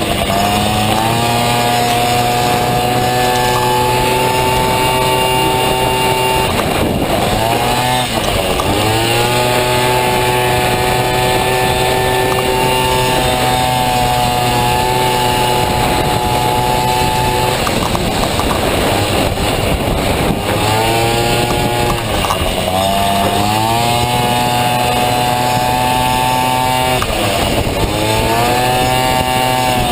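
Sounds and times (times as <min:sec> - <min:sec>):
scooter engine revving high: 0:00.0 - 0:29.9.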